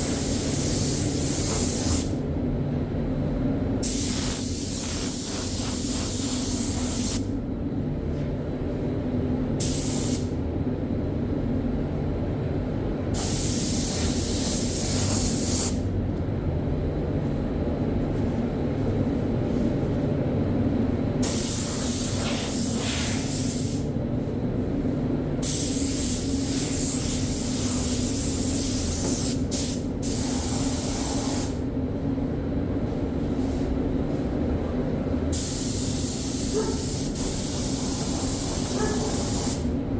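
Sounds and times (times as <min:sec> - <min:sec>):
spray gun hissing: 0:03.8 - 0:07.2, 0:25.4 - 0:31.5, 0:35.4 - 0:39.7.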